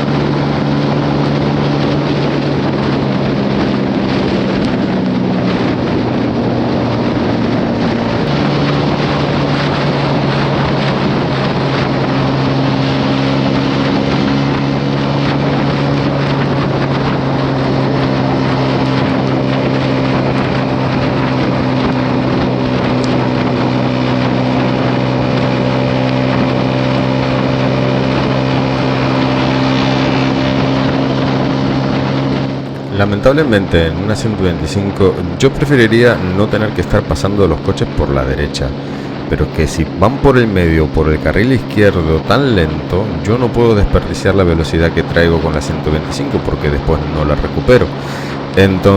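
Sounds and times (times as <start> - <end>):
motorcycle engine cruising: 0.0 - 48.9
wind on microphone: 0.0 - 48.9.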